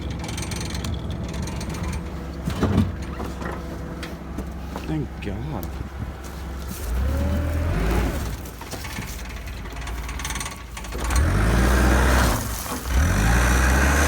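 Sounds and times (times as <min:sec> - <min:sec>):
engine revving: 0:06.7 - 0:08.6, 0:09.4 - 0:14.0.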